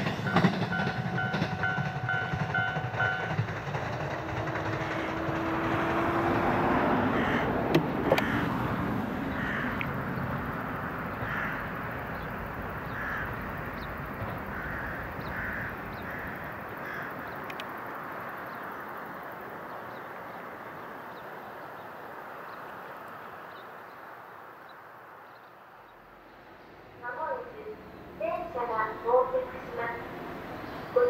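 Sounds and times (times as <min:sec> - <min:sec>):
train rumble: 0:00.0 - 0:22.4, 0:25.7 - 0:31.0
crow cawing: 0:07.0 - 0:08.6, 0:09.3 - 0:10.0, 0:11.1 - 0:11.9, 0:12.8 - 0:13.6, 0:14.5 - 0:17.4.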